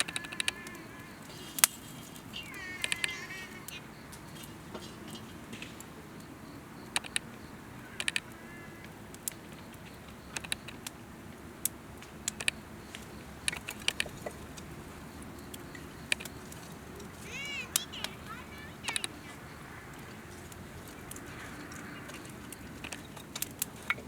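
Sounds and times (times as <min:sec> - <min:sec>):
campfire wood crackling: 0:00.0 - 0:24.0
low steady burning: 0:00.0 - 0:24.0
sharp pops and snaps: 0:06.8 - 0:11.0, 0:11.6 - 0:24.0.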